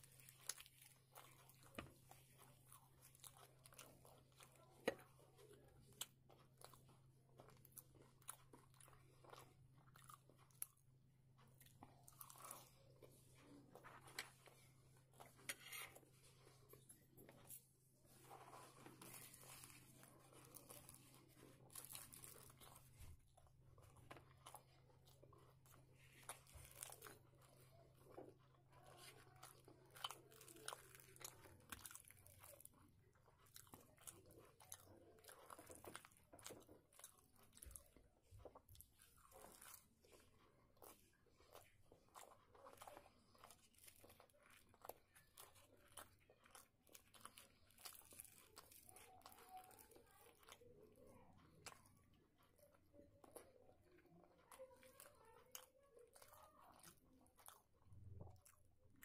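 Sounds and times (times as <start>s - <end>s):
soft chewing: 0.0s - 59.0s.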